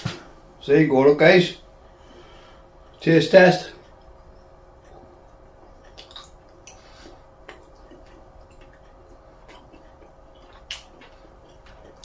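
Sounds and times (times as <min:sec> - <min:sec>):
man chewing food: 0:03.8 - 0:12.0
wet mouth clicks and smacks: 0:05.8 - 0:06.8, 0:07.4 - 0:12.0.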